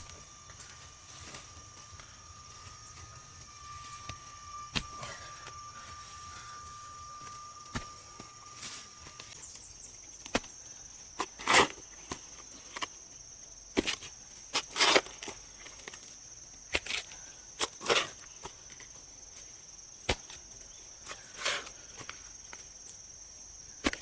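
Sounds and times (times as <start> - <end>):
hand-tool strikes: 0.0 - 9.3
scraping chopping hits: 0.0 - 9.4
insects droning: 0.0 - 24.0.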